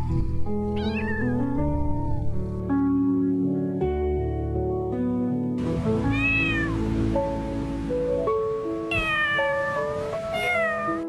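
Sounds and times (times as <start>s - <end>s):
background music: 0.0s - 11.0s
cat meowing: 0.7s - 2.2s, 6.1s - 6.8s, 8.9s - 11.0s.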